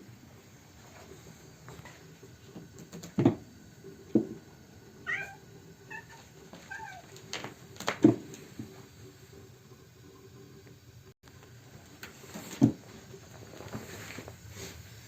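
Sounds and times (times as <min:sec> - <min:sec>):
cat meowing: 0:05.0 - 0:07.1.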